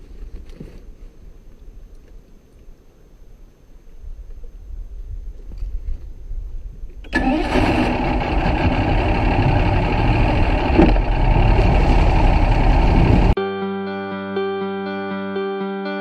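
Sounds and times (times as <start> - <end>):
outboard motor running: 7.1 - 13.4.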